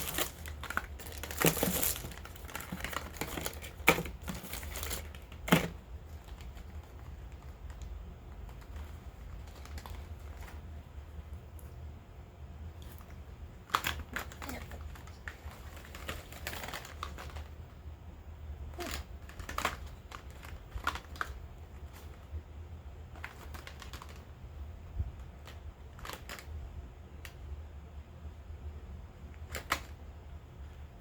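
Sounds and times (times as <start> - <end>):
packaging taps and crinkles: 0.0 - 10.6.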